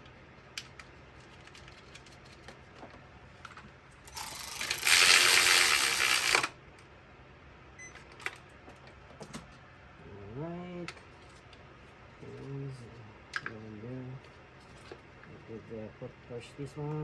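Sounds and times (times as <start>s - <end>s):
ratchet wrench clicking: 4.1s - 6.5s.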